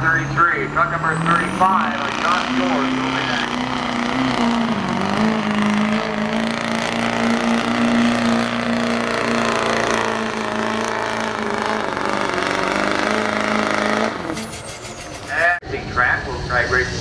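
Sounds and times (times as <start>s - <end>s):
diesel truck engine under load: 0.0s - 17.0s.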